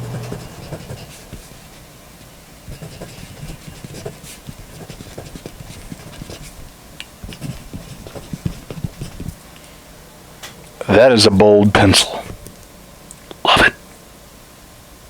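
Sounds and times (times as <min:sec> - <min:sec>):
pencil scratching on paper: 0:00.0 - 0:01.7, 0:02.7 - 0:09.4.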